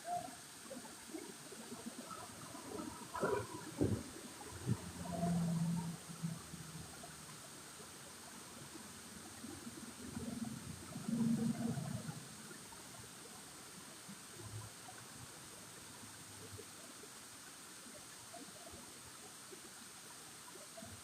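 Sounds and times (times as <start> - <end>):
faint flowing water: 0.0 - 21.0.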